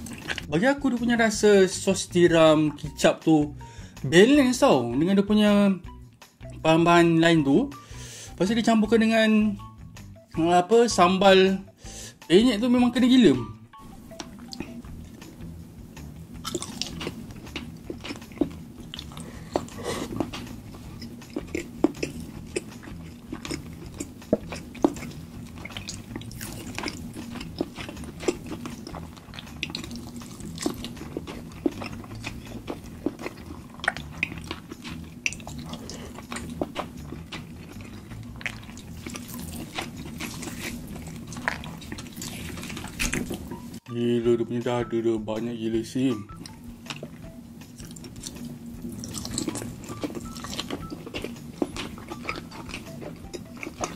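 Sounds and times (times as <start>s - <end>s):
chewing chicken crunches: 16.4s - 43.5s, 47.8s - 53.9s.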